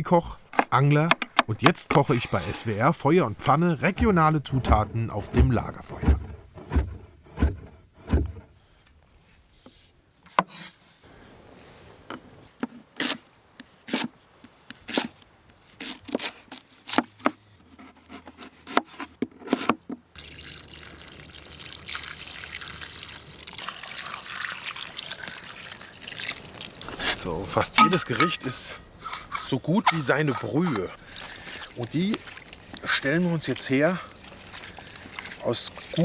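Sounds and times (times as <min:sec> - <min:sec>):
water pouring into pot: 0:20.2 - 0:33.0.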